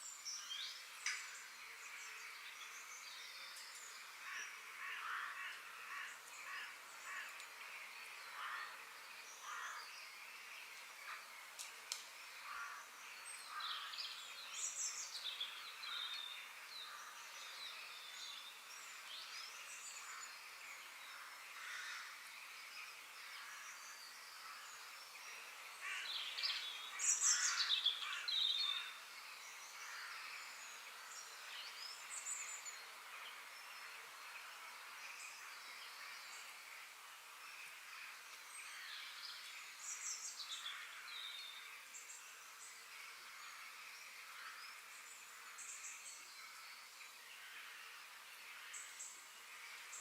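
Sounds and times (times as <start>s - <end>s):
birds chirping and singing: 0.0s - 36.6s
high background hiss: 0.0s - 50.0s.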